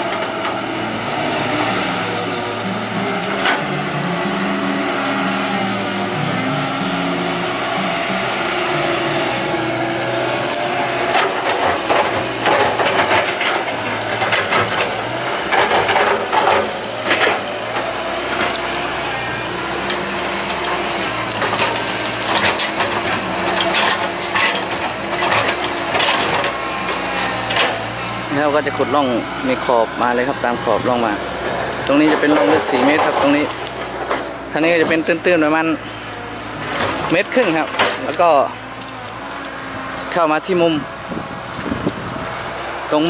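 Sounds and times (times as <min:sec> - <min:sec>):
excavator diesel engine running: 0:00.0 - 0:43.0
bucket scraping and clattering soil: 0:31.9 - 0:34.0.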